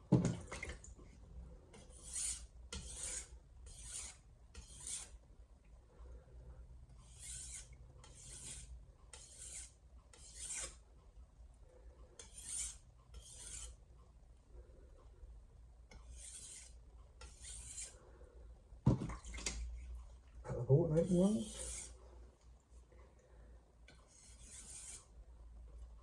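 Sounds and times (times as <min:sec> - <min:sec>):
knife scraping on whetstone: 0:01.7 - 0:05.2, 0:07.0 - 0:10.8, 0:12.2 - 0:13.8, 0:15.9 - 0:18.0, 0:21.0 - 0:22.0, 0:23.9 - 0:25.1.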